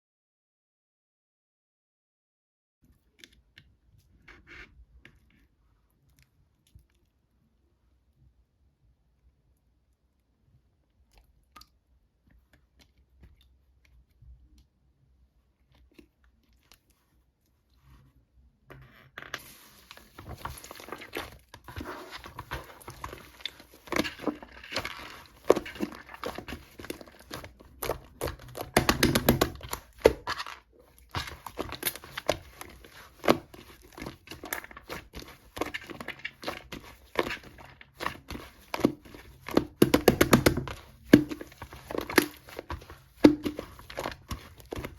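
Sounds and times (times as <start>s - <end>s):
slime crackling and popping: 19.4s - 44.9s.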